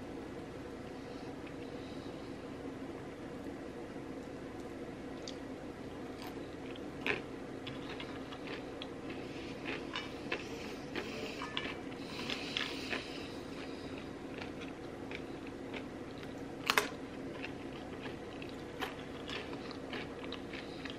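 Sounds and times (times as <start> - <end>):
low background hum: 0.0 - 20.9
crunchy chewing of fried chicken: 6.0 - 20.9.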